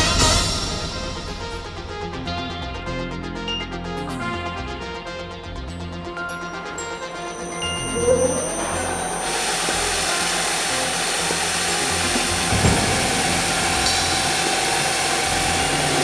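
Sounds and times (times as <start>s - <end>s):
machine whine: 5.8s - 16.0s
tube drilling machine hissing: 6.7s - 16.0s.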